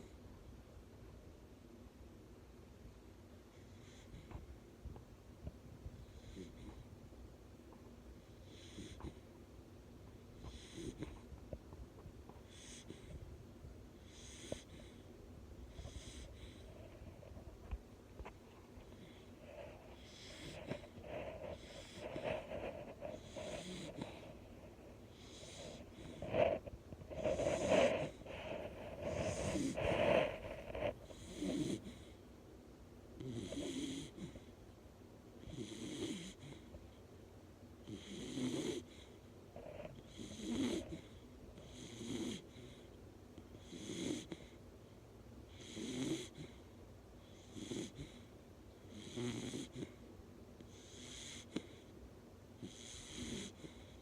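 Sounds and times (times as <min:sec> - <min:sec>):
dog snoring: 0:03.5 - 0:04.4, 0:06.0 - 0:06.9, 0:08.2 - 0:09.2, 0:10.4 - 0:11.3, 0:12.4 - 0:13.2, 0:14.0 - 0:15.0, 0:15.6 - 0:32.2, 0:33.2 - 0:34.5, 0:35.4 - 0:36.8, 0:37.8 - 0:44.6, 0:45.5 - 0:50.0, 0:50.6 - 0:51.9, 0:52.6 - 0:54.0.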